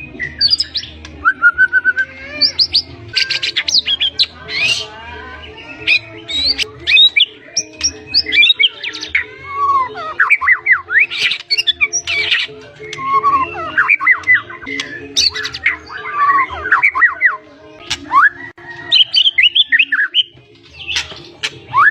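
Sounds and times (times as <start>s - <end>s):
shama singing varied song: 0.0s - 21.9s.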